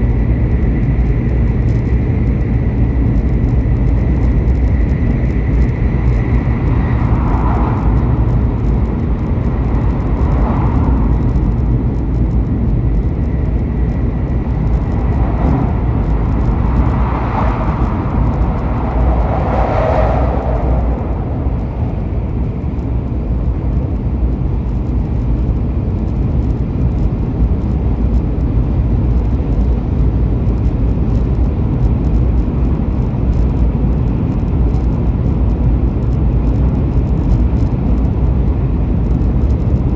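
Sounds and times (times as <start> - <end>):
moving vehicle rumble: 0.0 - 39.9
soft higher-pitched swells: 15.1 - 23.4.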